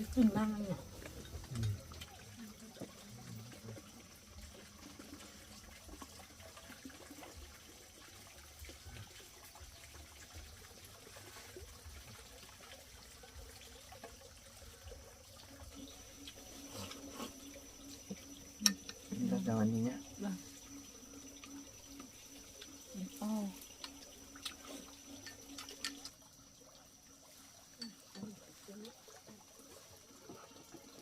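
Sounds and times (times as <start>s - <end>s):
trickle of running water: 0.0s - 31.0s
small ticks: 15.7s - 26.4s.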